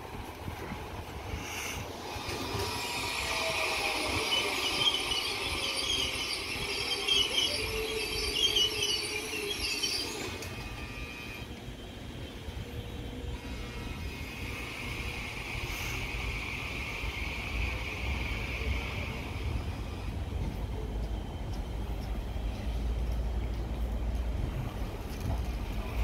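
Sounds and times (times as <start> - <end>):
train wheels rumbling: 0.0 - 26.0
high wavering wheel squeals: 2.5 - 11.6.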